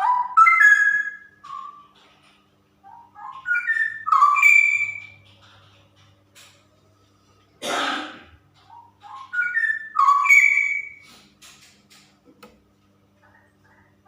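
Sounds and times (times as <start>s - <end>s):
bird whistling notes: 0.0s - 1.9s, 2.9s - 5.2s, 8.9s - 11.0s.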